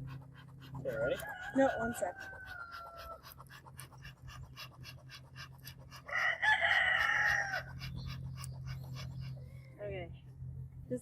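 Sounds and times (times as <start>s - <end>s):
rooster crowing: 0.9s - 3.4s, 6.1s - 7.7s.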